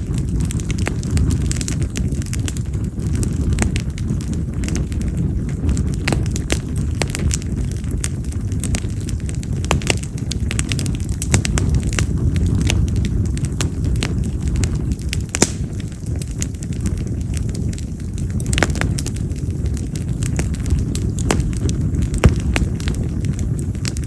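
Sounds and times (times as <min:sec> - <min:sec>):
campfire pops and crackles: 0:00.0 - 0:24.0
low rumble: 0:00.0 - 0:24.0.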